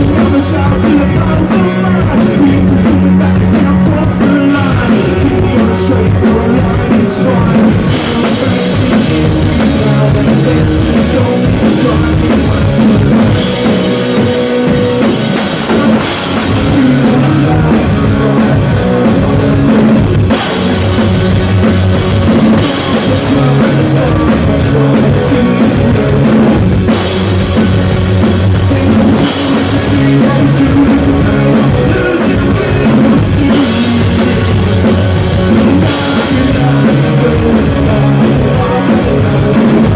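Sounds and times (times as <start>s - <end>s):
drum kit: 0.0s - 39.9s
guitar: 0.0s - 39.9s
live rock music: 0.0s - 39.9s.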